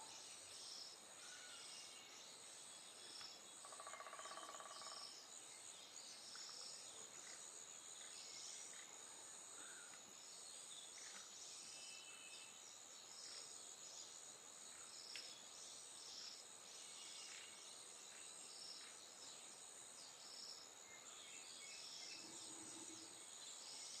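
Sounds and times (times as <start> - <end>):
high-pitched insect drone: 3.7 - 5.2.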